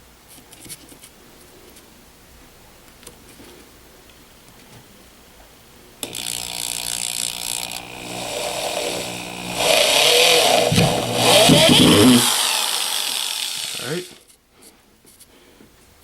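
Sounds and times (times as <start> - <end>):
power screwdriver running: 6.0 - 14.2.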